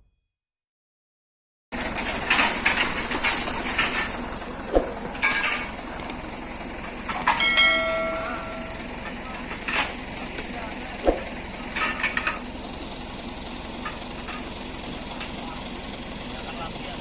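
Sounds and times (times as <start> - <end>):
metallic rattling and jingling: 1.8 - 17.0
sharp clanks: 1.8 - 17.0
steady pitched tone: 3.5 - 9.3.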